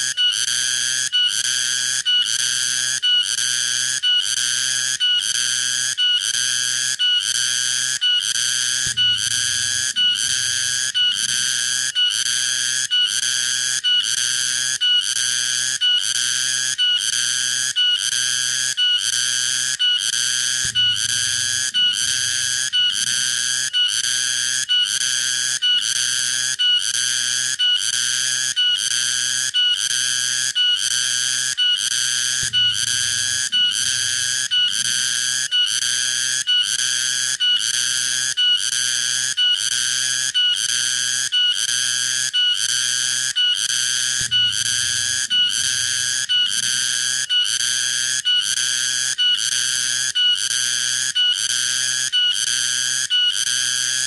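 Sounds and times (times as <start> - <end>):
cicada pulsing buzz: 8.8 - 11.7, 32.1 - 35.9.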